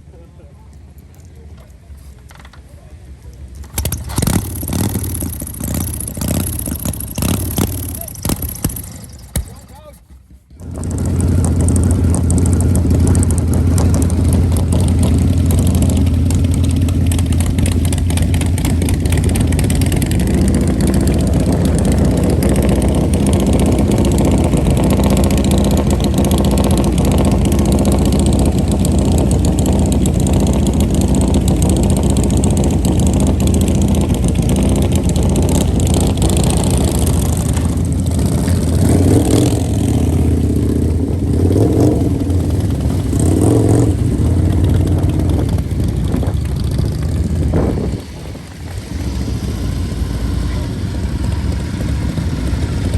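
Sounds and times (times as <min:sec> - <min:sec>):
loud engine running steadily: 0:00.0 - 0:52.9.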